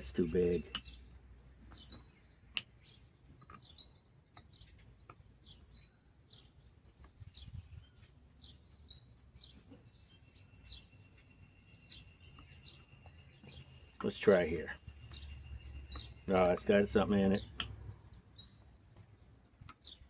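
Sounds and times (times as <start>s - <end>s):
faint bird chirping: 0.0s - 20.0s.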